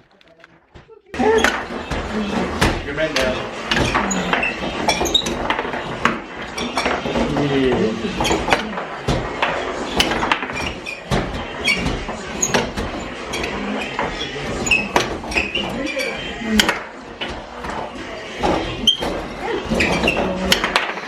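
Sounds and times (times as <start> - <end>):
people talking indistinctly: 0.1 - 10.4.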